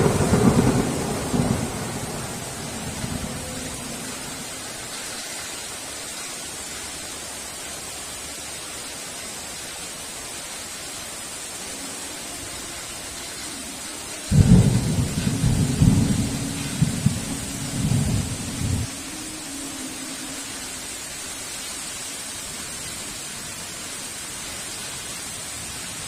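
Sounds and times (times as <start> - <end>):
thunder clap rumbling: 0.0 - 4.7, 14.3 - 19.0
heavy rain hissing: 0.0 - 26.0.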